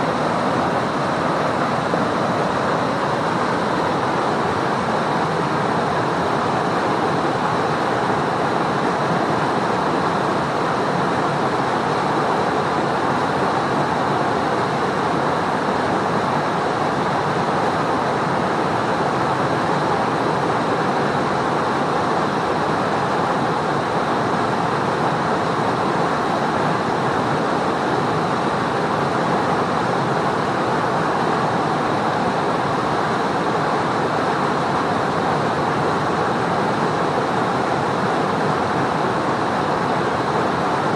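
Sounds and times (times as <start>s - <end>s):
mountain river rushing: 0.0s - 40.9s.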